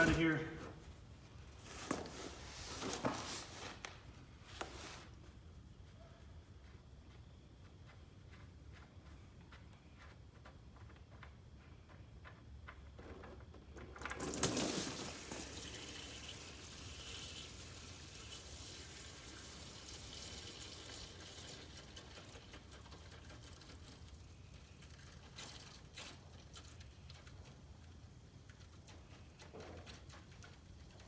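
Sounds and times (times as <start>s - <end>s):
fuel pouring into container: 13.8s - 26.3s.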